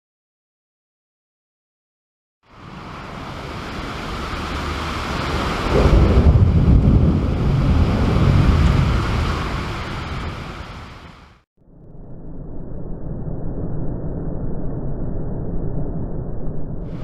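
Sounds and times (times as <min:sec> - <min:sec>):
rolling thunder: 0:02.6 - 0:11.3.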